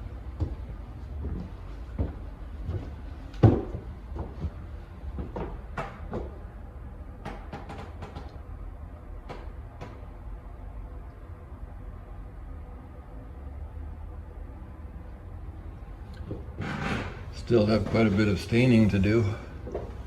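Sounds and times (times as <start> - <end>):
footsteps on wooden stairs: 0.3 - 6.4, 19.6 - 20.0.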